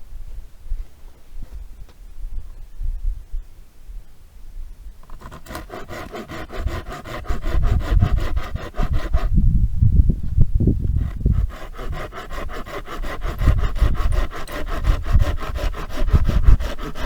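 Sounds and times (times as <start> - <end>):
saw scraping wood: 5.0 - 9.4, 11.0 - 17.0.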